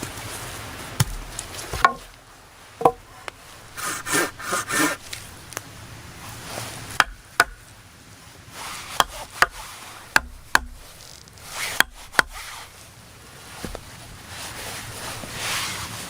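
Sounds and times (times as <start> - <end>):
tool knocking on wood: 10.2 - 10.8.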